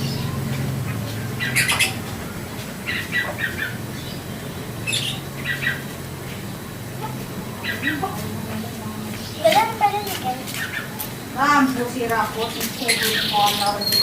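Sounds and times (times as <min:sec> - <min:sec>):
canary chirping: 0:00.0 - 0:14.0
steady low hum: 0:00.0 - 0:14.0.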